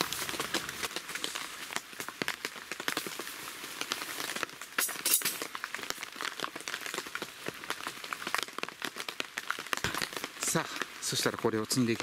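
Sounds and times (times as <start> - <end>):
rain pattering and dripping: 0.0 - 12.0.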